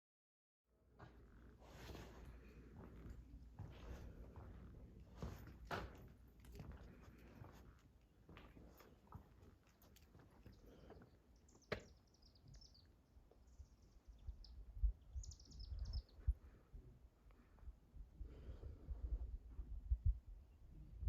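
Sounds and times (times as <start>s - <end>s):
small songbird singing: 10.4s - 16.4s
wind rumbling on microphone: 14.1s - 21.0s.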